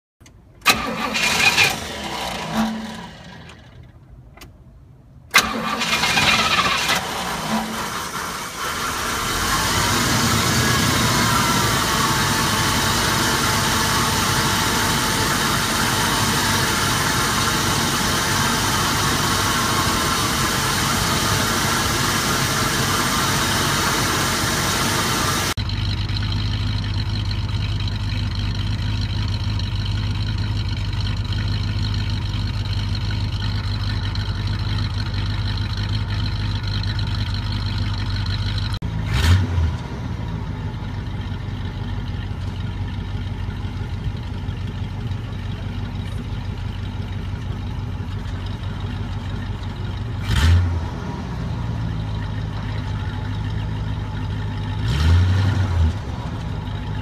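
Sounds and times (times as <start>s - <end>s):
car engine idling: 0.2s - 57.0s
fan belt and intake hiss: 6.6s - 25.6s.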